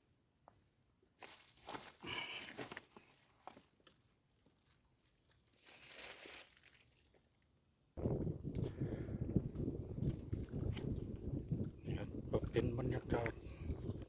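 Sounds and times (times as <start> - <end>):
crinkling and rustling: 1.2 - 7.5.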